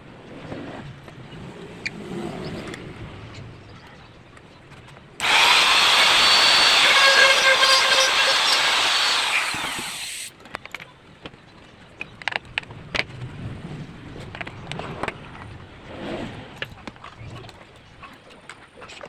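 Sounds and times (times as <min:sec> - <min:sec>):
electric drill whining: 0:05.2 - 0:10.3.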